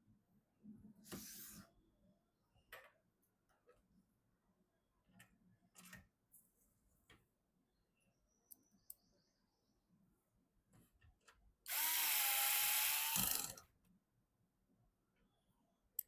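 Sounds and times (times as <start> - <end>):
electric screwdriver whine: 11.7 - 13.6.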